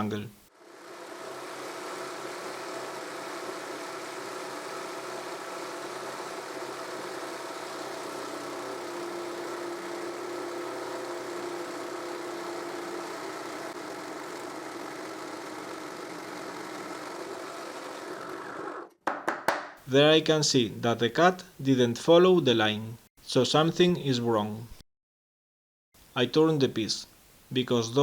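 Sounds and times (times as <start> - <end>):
jigsaw motor humming: 0.6 - 18.9.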